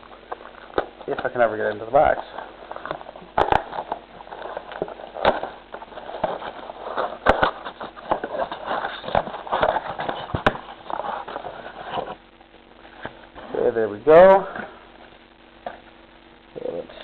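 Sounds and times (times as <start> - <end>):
cardboard box tearing and crinkling: 2.6 - 12.2.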